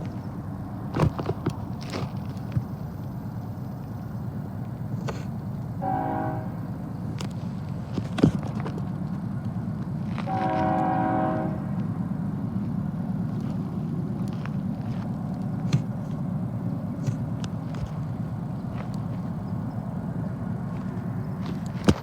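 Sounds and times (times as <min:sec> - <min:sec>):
freight train rumbling on rails: 0:00.0 - 0:22.0
locomotive horn blast: 0:05.8 - 0:06.8, 0:10.2 - 0:11.9.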